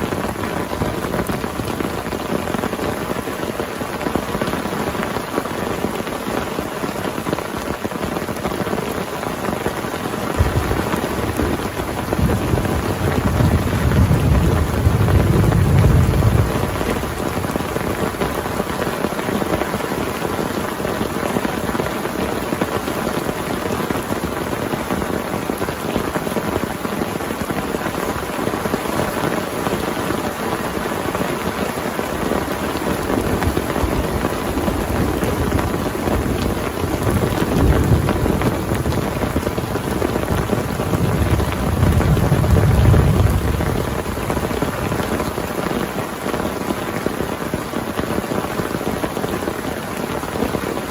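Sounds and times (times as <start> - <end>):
heavy rain: 0.0 - 50.9
thunder rumbling: 10.2 - 18.4, 32.9 - 45.6.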